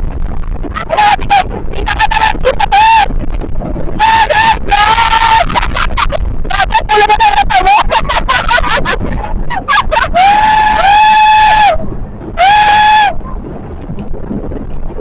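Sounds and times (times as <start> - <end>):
steady low rumble: 0.0 - 15.0
people screaming: 0.8 - 3.1, 4.0 - 11.8, 12.4 - 13.2.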